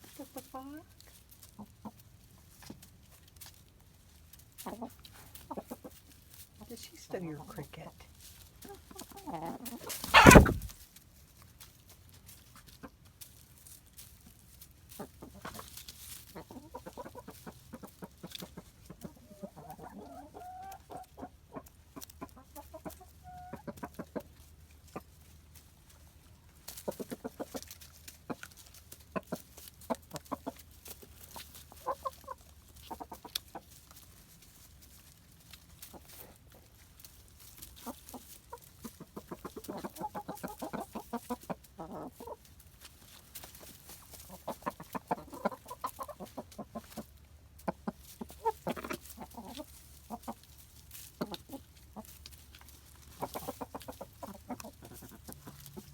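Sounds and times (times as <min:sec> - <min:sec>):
hens clucking softly: 0:00.0 - 0:10.8, 0:14.7 - 0:55.9
sharp loud noise: 0:10.1 - 0:10.8.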